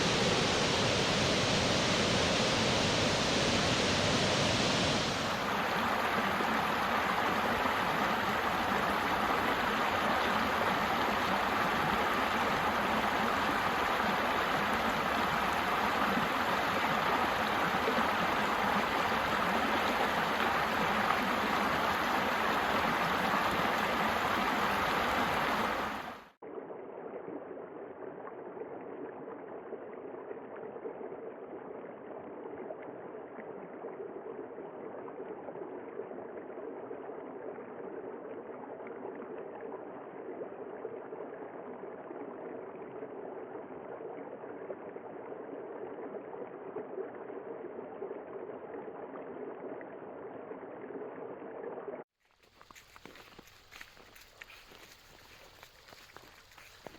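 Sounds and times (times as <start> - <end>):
water rushing: 0.0 - 26.4, 52.4 - 56.9.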